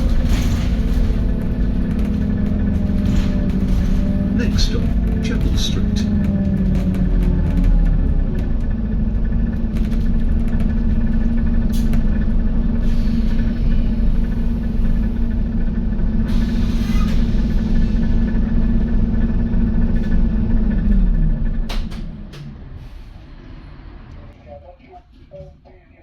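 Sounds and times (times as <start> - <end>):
bodywork rattles: 0.0 - 12.5
road rumble: 0.0 - 24.4
bus diesel engine drone: 0.0 - 25.3.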